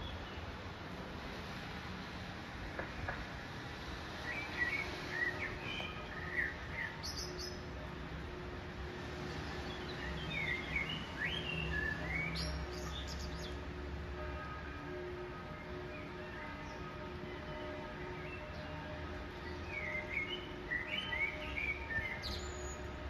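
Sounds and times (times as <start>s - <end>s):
low city rumble: 0.0s - 23.0s
birds chirping and twittering: 4.3s - 7.7s, 9.3s - 13.6s, 15.6s - 23.0s.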